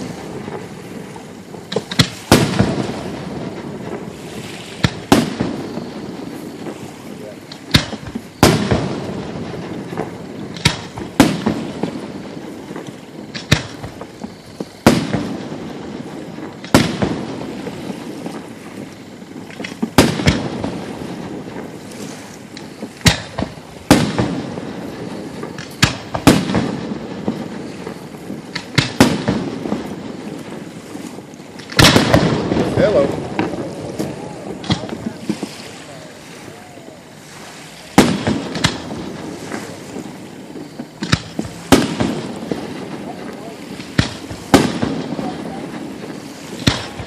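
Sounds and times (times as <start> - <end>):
fireworks booming: 0.0 - 47.0
fireworks crackle: 0.0 - 47.0.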